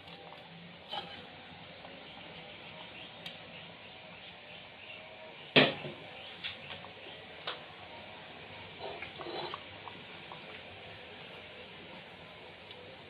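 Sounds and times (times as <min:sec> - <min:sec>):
food simmering in pot: 0:00.0 - 0:13.0
scraping in pot: 0:00.9 - 0:01.4, 0:08.8 - 0:09.8.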